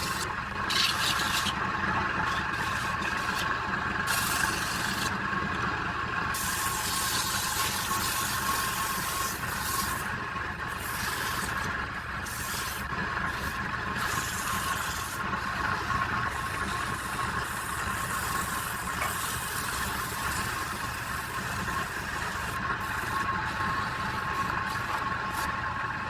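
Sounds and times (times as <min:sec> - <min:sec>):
woodturning lathe running: 0:00.0 - 0:26.0.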